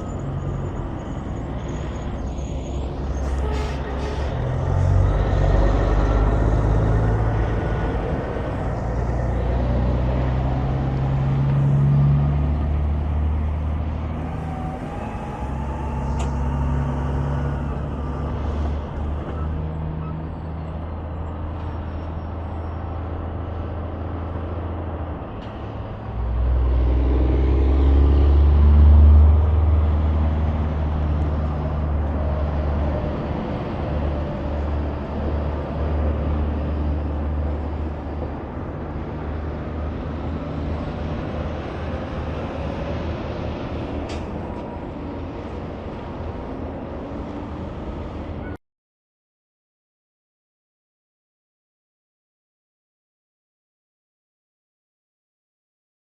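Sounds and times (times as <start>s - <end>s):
loud vehicle passing: 0.0s - 21.5s, 22.8s - 48.4s
highway traffic drone: 0.0s - 48.6s.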